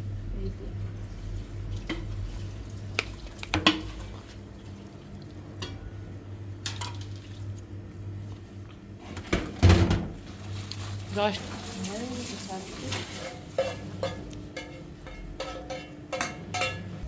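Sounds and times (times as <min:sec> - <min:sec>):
steady low hum: 0:00.0 - 0:12.0
dishes and pots clinking: 0:05.6 - 0:05.8, 0:06.6 - 0:07.2, 0:11.6 - 0:17.0.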